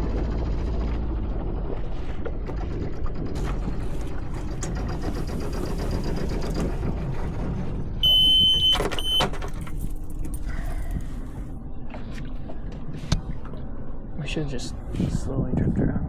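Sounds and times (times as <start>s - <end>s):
steady low rumble: 0.0s - 8.7s, 9.6s - 16.0s
high-pitched electronic beep: 8.0s - 9.2s.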